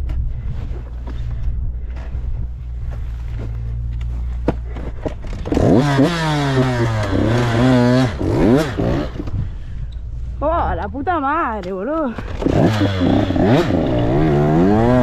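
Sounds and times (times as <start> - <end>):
motocross bike engine revving: 5.3 - 9.3, 12.3 - 15.0.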